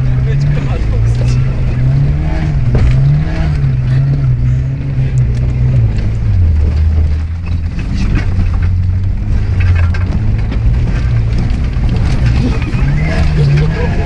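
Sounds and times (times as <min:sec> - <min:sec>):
car engine running under load: 0:00.0 - 0:14.0
knocks and rattles: 0:05.2 - 0:14.0.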